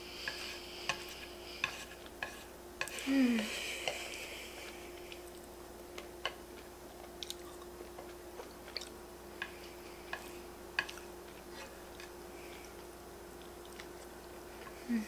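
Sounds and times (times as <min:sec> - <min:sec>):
faint steady hum: 0:00.0 - 0:15.0
chewing noodles: 0:03.9 - 0:14.8.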